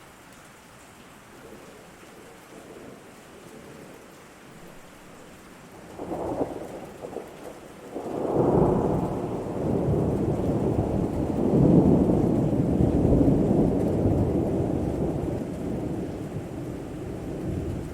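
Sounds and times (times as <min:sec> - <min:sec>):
steady rain: 0:00.0 - 0:17.9
thunder rolling: 0:05.9 - 0:17.9.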